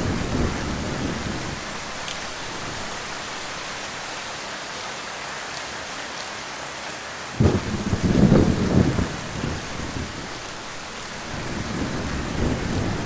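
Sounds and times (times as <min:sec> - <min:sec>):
low thunder rumble: 0:00.0 - 0:03.2, 0:07.4 - 0:13.0
heavy rain falling: 0:00.0 - 0:13.0.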